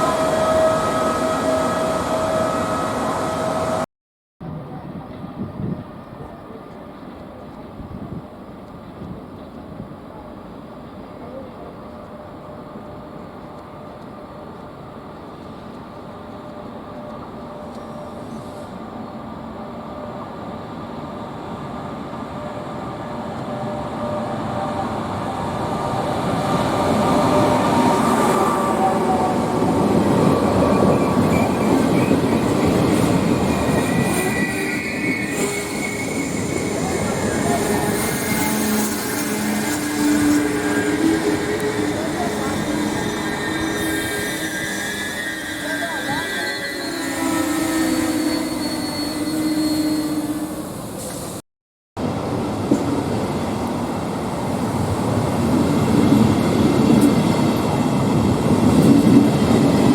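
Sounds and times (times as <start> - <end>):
train rumbling past: 0.0 - 51.4, 52.0 - 59.9
high wheel squeal: 26.8 - 51.3.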